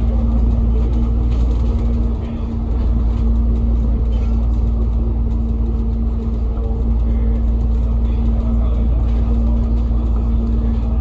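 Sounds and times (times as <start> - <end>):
bus engine and road rumble: 0.0 - 11.0
constant hum: 0.0 - 11.0.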